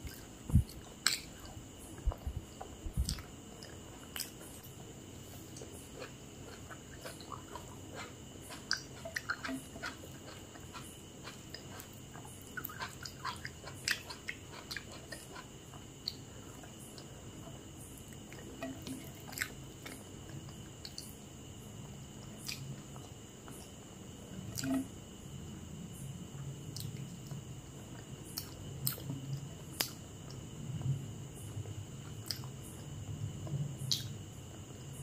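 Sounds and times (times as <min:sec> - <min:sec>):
person chewing food: 0:00.0 - 0:21.2, 0:32.0 - 0:32.5.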